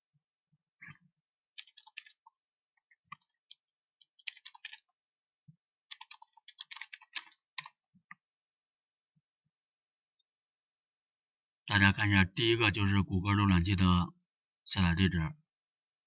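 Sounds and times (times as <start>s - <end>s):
computer keyboard typing: 0.8s - 5.0s, 5.8s - 8.2s.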